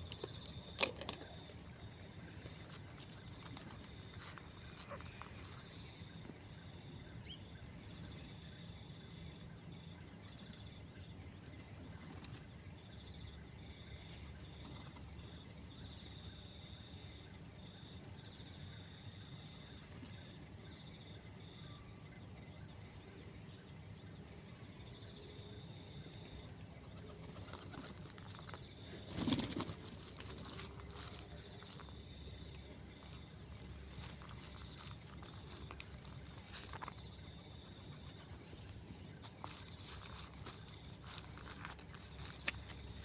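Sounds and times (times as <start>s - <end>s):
bird wingbeats: 26.8s - 43.0s.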